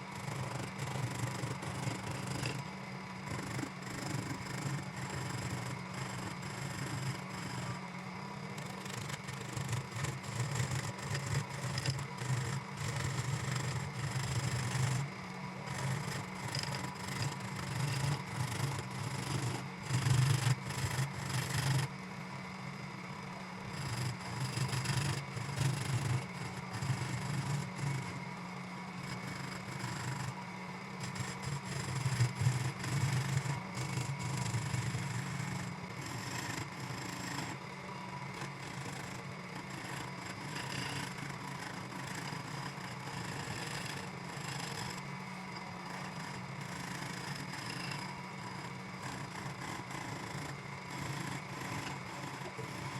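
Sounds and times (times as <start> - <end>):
electric woodworking tool running: 0.0 - 52.9
tool scraping wood: 0.2 - 7.8, 8.5 - 21.9, 23.6 - 28.3, 29.0 - 37.6.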